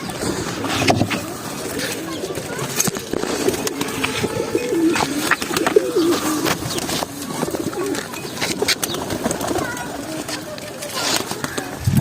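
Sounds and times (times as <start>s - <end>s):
pigeons cooing: 0.0s - 12.0s
beaks pecking at grit: 1.0s - 11.7s.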